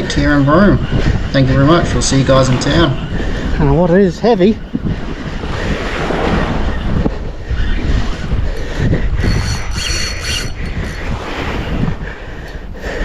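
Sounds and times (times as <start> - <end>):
wind buffeting microphone: 0.0 - 13.0
high-pitched whirring: 8.6 - 11.4.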